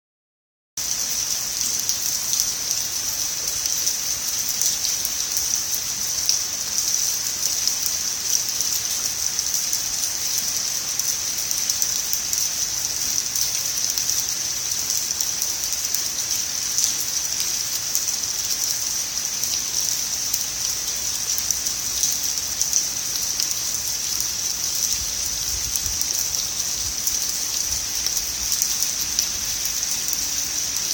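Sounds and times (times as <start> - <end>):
steady rain hissing: 0.8 - 30.9
raindrops ticking: 19.4 - 30.9.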